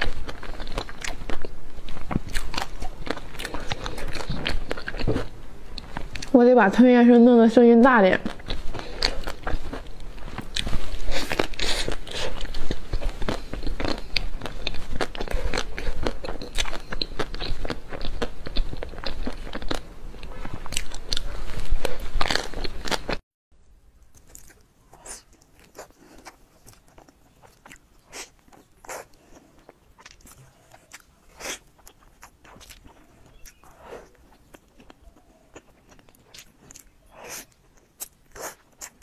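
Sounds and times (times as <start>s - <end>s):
person chewing and crunching: 0.0s - 6.3s, 8.2s - 23.2s, 24.1s - 39.0s.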